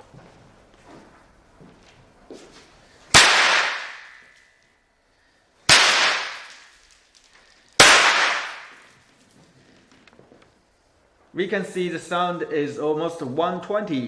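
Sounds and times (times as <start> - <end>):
snap crackers banging: 3.1 - 4.5, 5.7 - 10.5.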